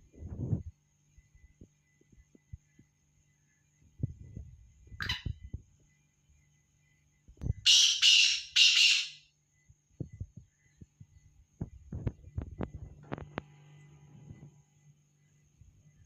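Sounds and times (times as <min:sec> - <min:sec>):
bird harsh grating call: 0:07.7 - 0:09.2.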